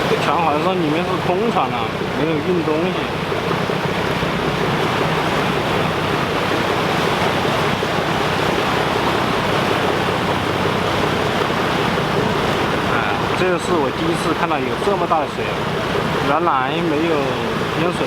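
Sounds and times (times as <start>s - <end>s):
rushing floodwater: 0.0s - 18.0s.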